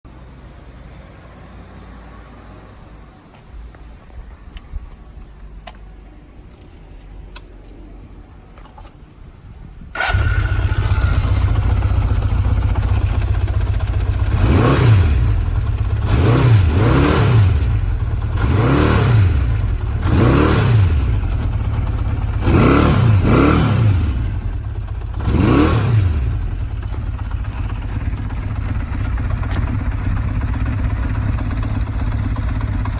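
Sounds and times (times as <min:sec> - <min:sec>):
motorcycle engine starting and idling: 0:09.9 - 0:32.9
motorcycle engine revving: 0:10.0 - 0:32.9.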